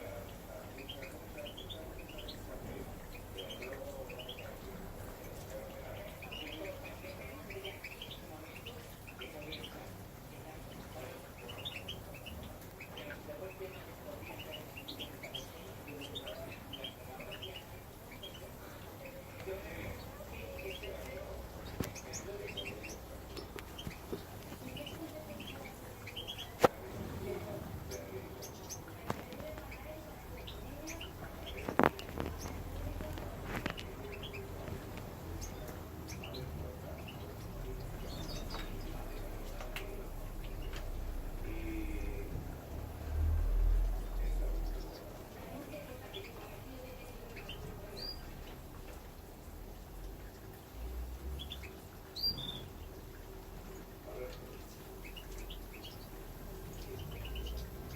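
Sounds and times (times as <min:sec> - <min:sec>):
finches twittering: 0:00.0 - 0:42.3.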